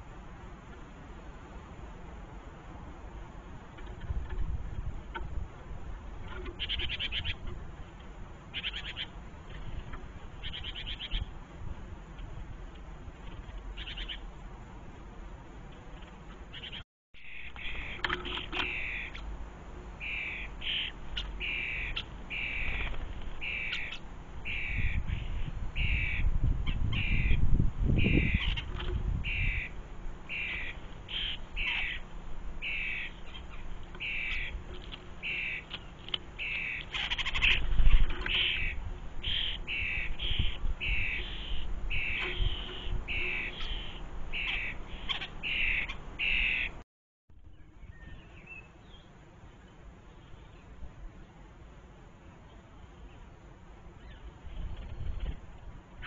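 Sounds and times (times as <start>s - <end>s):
bird calling: 6.2s - 7.6s, 8.5s - 11.4s, 13.2s - 14.3s, 15.7s - 19.4s, 20.0s - 46.8s.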